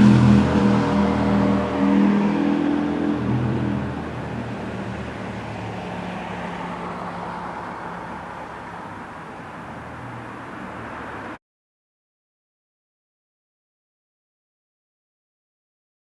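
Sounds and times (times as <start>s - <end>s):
motorcycle engine revving: 0.0s - 6.1s.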